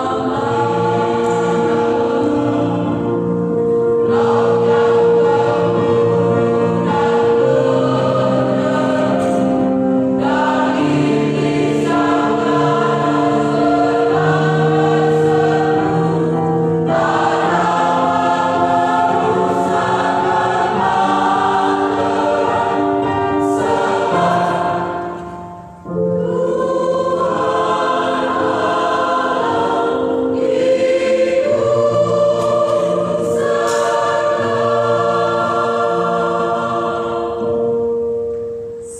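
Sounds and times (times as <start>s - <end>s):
choir singing a hymn: 0.0s - 38.9s.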